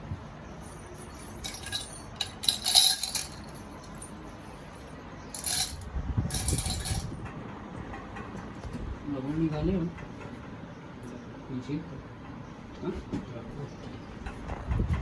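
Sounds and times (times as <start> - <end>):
clinking and rustling: 0.5 - 7.4.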